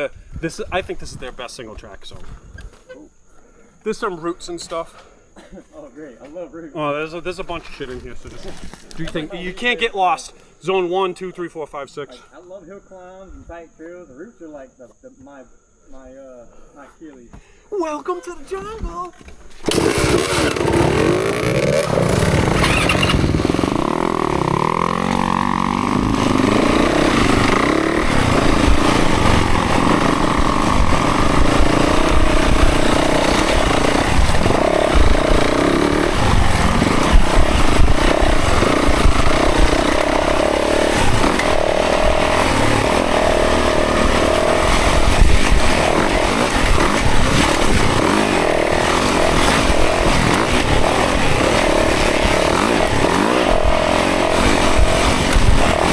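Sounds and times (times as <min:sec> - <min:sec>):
dirt bike engine revving: 0:19.6 - 0:55.9.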